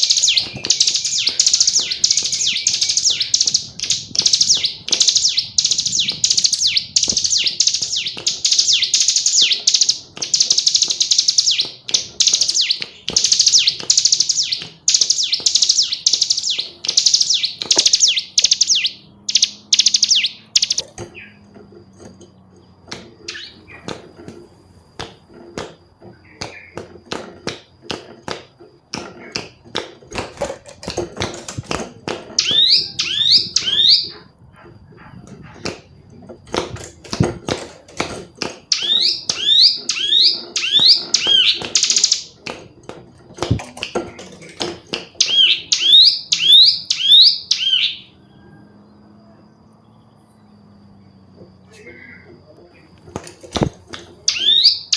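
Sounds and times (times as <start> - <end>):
bird clicks: 0.0 - 20.9
bird singing chattering trill: 0.0 - 21.5, 23.3 - 23.9, 26.1 - 26.8, 32.4 - 34.3, 38.7 - 42.4, 43.8 - 52.9, 54.2 - 54.9.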